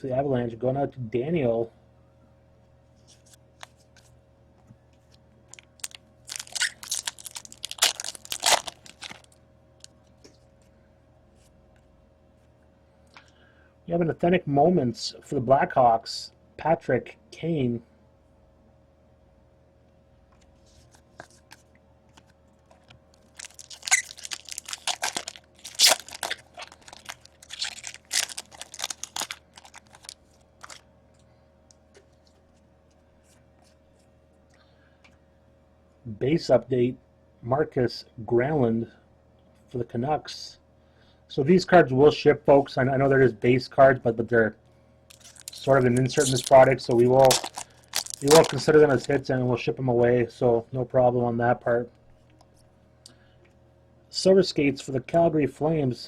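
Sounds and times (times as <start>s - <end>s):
foil wrapper crinkling and tearing: 5.5s - 9.9s, 22.7s - 30.8s, 45.1s - 49.2s.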